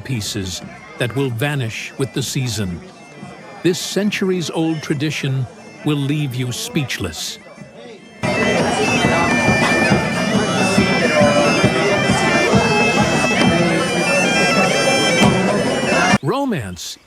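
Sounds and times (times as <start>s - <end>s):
bagpipe music with drone: 8.2s - 16.2s.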